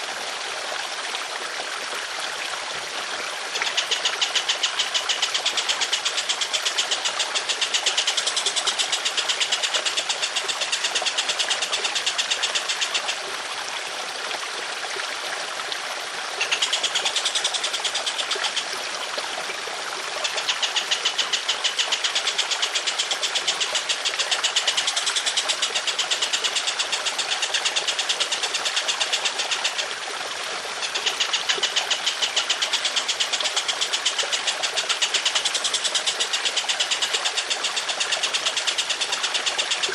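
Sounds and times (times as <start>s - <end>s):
trickle of running water: 0.0s - 39.9s
songbird rattling trills: 3.6s - 13.2s, 16.4s - 18.8s, 20.2s - 29.9s, 30.8s - 39.9s.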